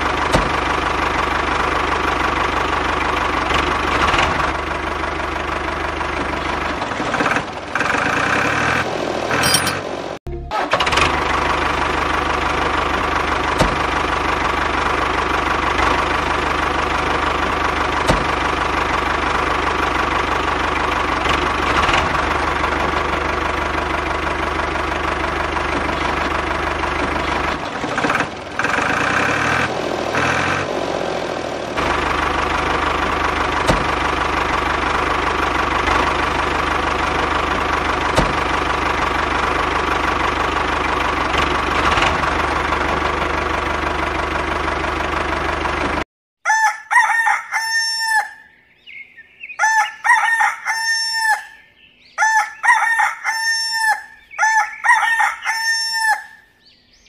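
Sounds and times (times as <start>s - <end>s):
rooster crowing: 46.4s - 48.5s, 49.6s - 56.5s.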